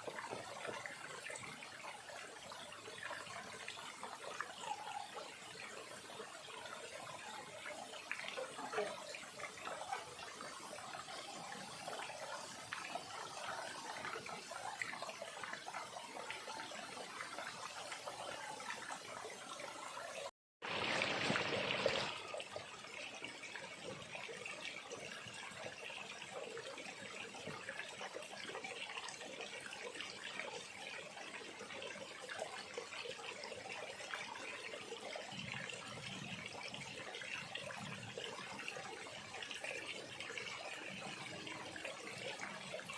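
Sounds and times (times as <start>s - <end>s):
rush of water: 0.0s - 29.2s
stream trickling: 0.0s - 42.9s.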